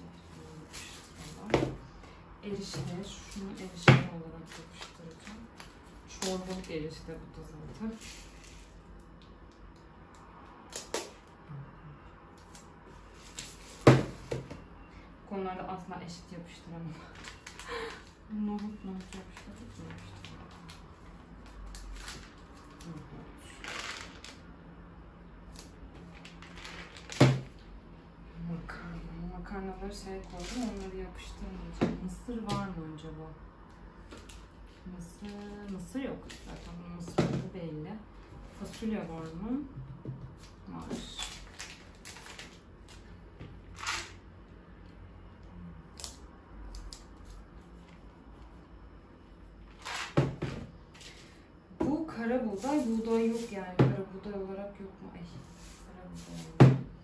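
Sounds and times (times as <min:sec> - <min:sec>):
crinkle: 0:17.1 - 0:24.4, 0:25.5 - 0:27.6, 0:41.0 - 0:43.1, 0:49.6 - 0:50.2
plastic containers rustling: 0:23.4 - 0:24.4, 0:26.0 - 0:27.6, 0:30.2 - 0:31.0, 0:49.7 - 0:51.4.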